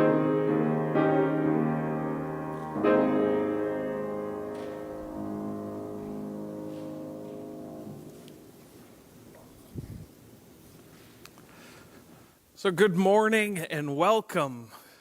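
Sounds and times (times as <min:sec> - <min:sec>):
piano chord ringing out: 0:00.0 - 0:08.6.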